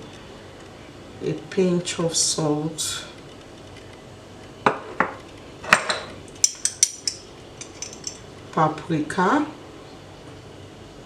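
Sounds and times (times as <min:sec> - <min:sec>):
spoon clinking against bowl: 0:05.9 - 0:08.2.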